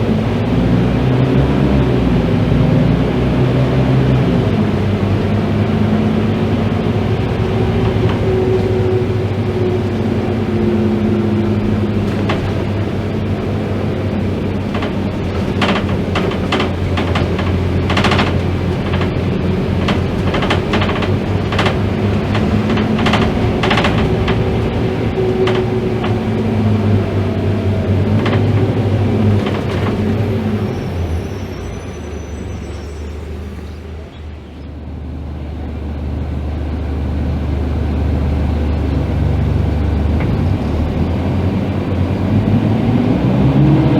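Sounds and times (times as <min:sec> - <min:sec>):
bus engine drone: 0:00.0 - 0:43.9
sharp rattles and knocks: 0:05.8 - 0:30.9.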